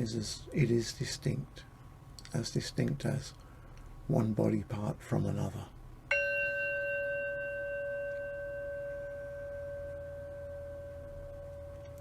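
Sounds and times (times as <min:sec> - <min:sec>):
singing bowl chime ringing: 0:06.1 - 0:12.0.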